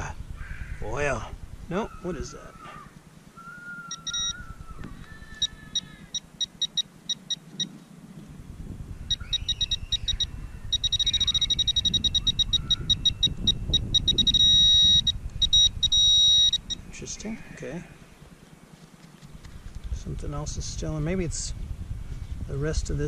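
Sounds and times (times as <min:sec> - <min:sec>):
metal detector beeping: 0:03.9 - 0:04.5, 0:05.2 - 0:07.7, 0:09.1 - 0:16.9
rustle of handling in dirt: 0:16.8 - 0:20.6.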